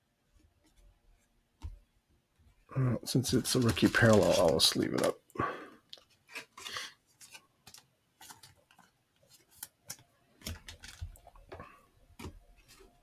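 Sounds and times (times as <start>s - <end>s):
trading cards clicking and sliding: 3.1s - 5.1s.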